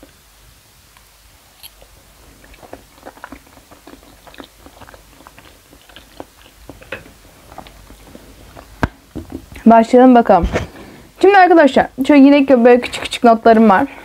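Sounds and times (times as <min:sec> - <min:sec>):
person chewing food: 0:01.5 - 0:09.6.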